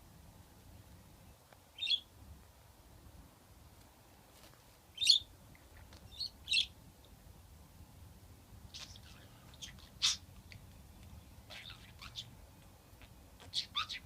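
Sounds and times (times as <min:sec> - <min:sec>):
budgerigar chirping: 0:01.8 - 0:02.1, 0:06.1 - 0:06.7, 0:08.8 - 0:10.3, 0:11.5 - 0:12.3, 0:13.0 - 0:14.0.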